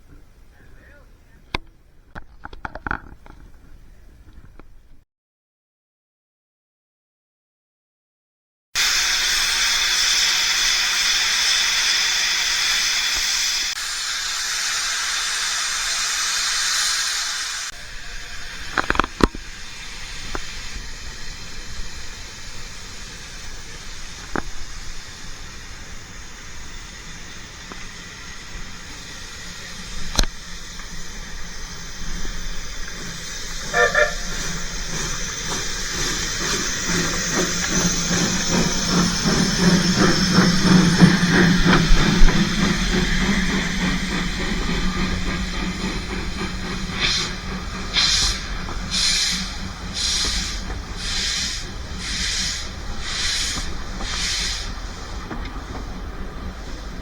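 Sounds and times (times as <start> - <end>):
steam locomotive running: 0.0 - 5.0, 8.8 - 57.0
hiss of steam: 8.8 - 57.0
sharp bursts of steam: 8.8 - 57.0
steam whistle toot: 33.6 - 34.5.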